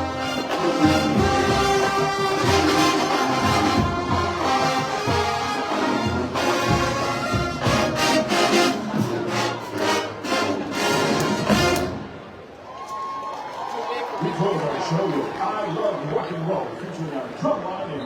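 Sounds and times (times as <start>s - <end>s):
marching band playing: 0.0s - 12.4s.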